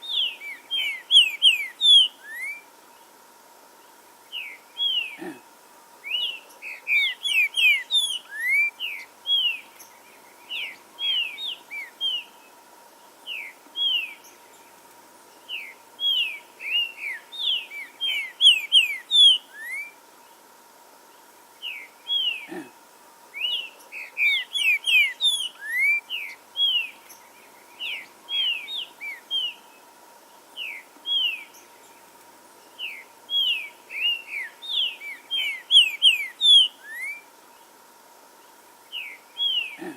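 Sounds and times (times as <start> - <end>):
faint steady hum: 0.0 - 39.9
bird singing whistled phrases: 0.1 - 2.6, 6.1 - 9.6, 15.6 - 20.0, 23.4 - 26.9, 32.9 - 37.2.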